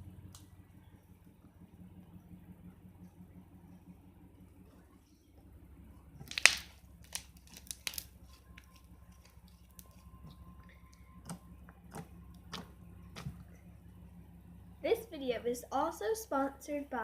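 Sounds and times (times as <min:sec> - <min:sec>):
faint low hum: 0:00.0 - 0:17.0
slime squishing clicks and pops: 0:06.3 - 0:08.1.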